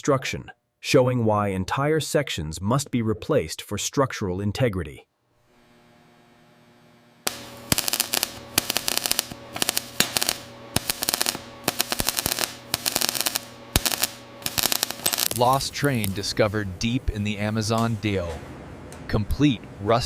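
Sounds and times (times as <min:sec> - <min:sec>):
machine hum: 0:05.4 - 0:19.2.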